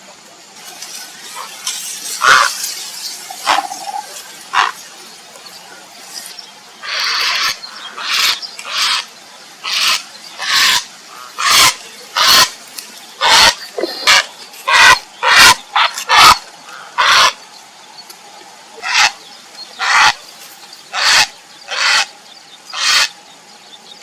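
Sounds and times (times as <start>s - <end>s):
heron harsh calls: 3.4s - 4.8s, 6.8s - 12.5s, 13.2s - 17.4s, 18.8s - 19.2s, 19.8s - 20.2s, 20.9s - 22.1s, 22.7s - 23.2s.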